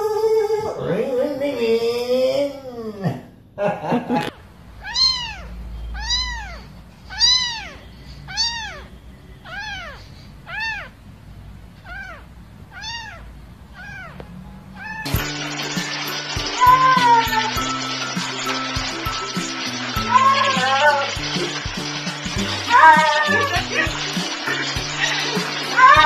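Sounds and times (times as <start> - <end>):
kitten meowing: 4.8 - 11.0, 11.8 - 15.2, 16.6 - 17.6, 20.0 - 21.1, 22.6 - 24.0, 25.0 - 26.0
music: 15.1 - 26.0.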